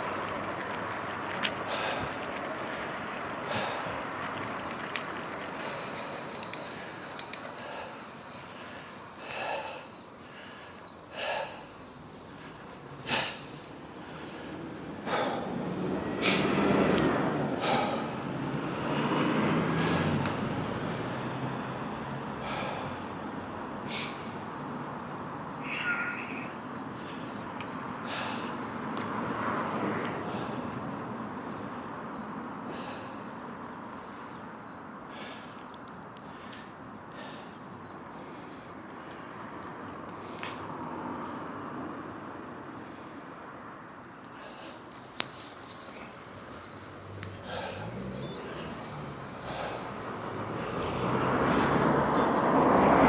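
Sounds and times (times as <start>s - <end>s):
bicycle wind and tyre noise: 0.0s - 53.0s
motor vehicle passing: 0.0s - 53.0s
sharp ticks and rattles: 4.3s - 7.6s.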